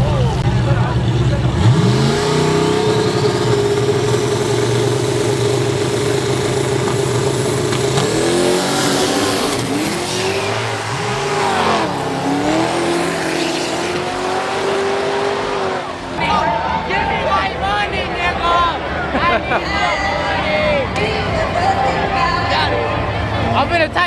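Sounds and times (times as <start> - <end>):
car engine revving: 0.0 - 19.1.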